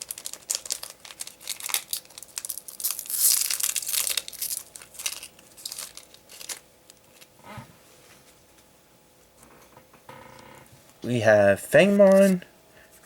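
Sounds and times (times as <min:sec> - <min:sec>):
foil pack crinkling and tearing: 0:00.0 - 0:07.3.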